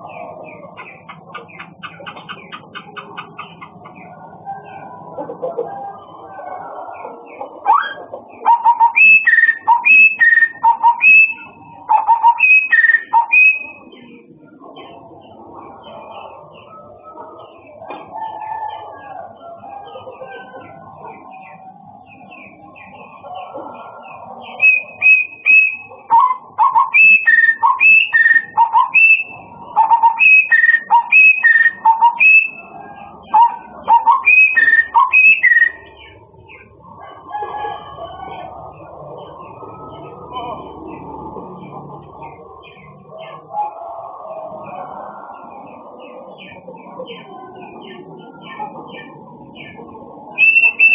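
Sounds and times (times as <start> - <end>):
songbird whistling song: 0.5 - 4.2, 7.6 - 13.9, 24.5 - 32.7, 33.3 - 36.6, 50.3 - 50.9.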